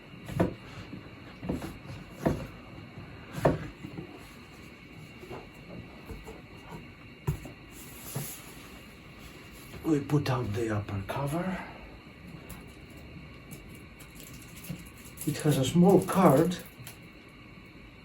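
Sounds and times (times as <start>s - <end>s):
cardboard knocks and bumps: 1.4s - 2.6s.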